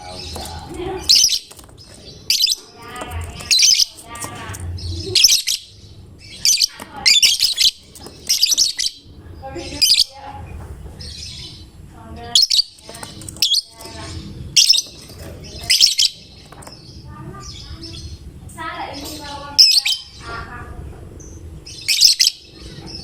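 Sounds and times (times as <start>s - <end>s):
bird shrill rapid chirping: 0.1s - 10.2s, 12.3s - 16.4s, 21.7s - 22.5s.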